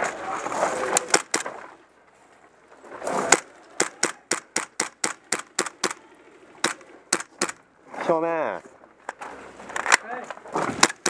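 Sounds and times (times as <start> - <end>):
airsoft gun shots: 1.0 - 1.5, 3.3 - 6.0, 6.6 - 7.6, 10.8 - 11.0.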